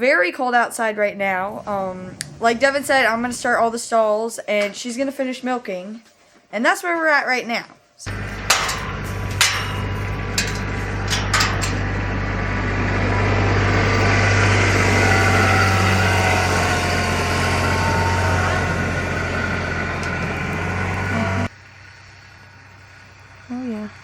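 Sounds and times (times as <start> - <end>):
machine humming: 8.1 - 21.5.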